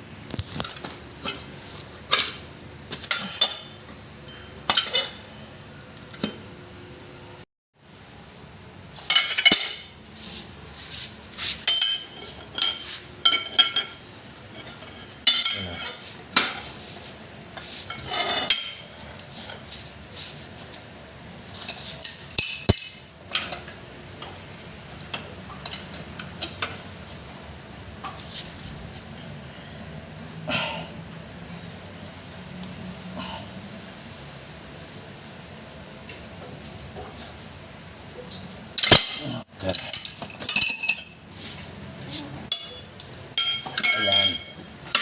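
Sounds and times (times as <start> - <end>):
metal tools clinking: 38.3 - 41.2, 42.5 - 45.0.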